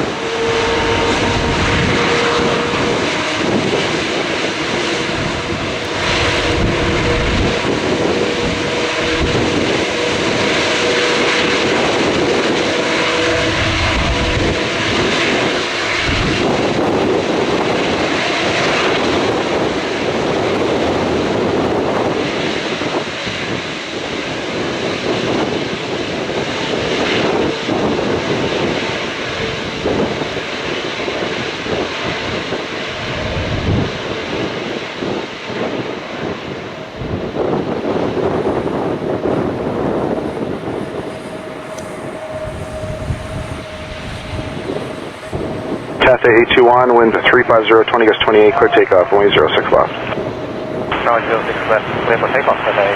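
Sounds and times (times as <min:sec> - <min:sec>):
steady tone: 0:00.0 - 0:21.4, 0:36.6 - 0:52.9
jet engines roaring: 0:00.0 - 0:52.9
wind buffeting microphone: 0:00.0 - 0:52.9.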